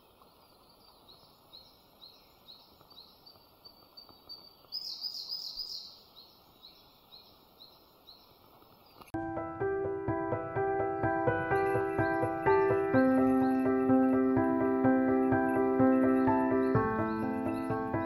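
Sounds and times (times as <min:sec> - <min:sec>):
faint background hiss: 0:00.0 - 0:09.2
songbirds singing: 0:00.0 - 0:18.0.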